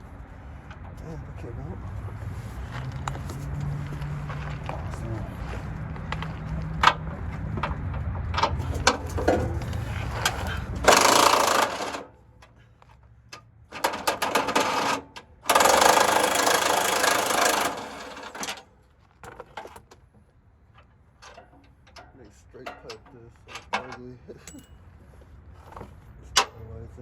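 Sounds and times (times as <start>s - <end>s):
impact wrench hammering: 8.6s - 12.1s, 13.7s - 18.6s
metal clinks: 23.9s - 25.0s.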